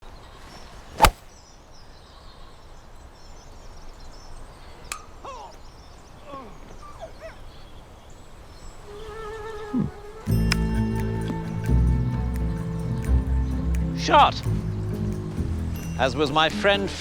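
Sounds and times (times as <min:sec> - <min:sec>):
open-air ambience: 0:00.0 - 0:17.0
golf club striking ball: 0:01.0 - 0:01.3.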